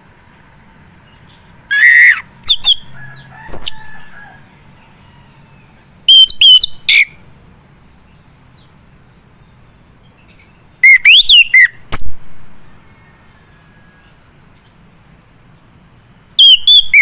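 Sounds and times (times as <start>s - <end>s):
thrush singing whistled notes: 1.2s - 3.8s, 6.1s - 7.2s, 10.0s - 14.7s, 16.4s - 17.0s.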